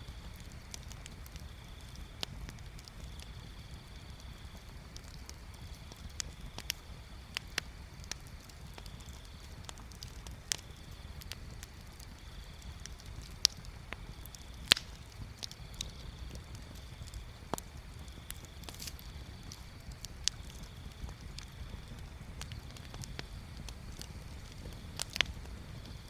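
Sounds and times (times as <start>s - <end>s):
low steady rumble: 0.0s - 26.0s
wood bonfire crackling and popping: 0.0s - 26.0s.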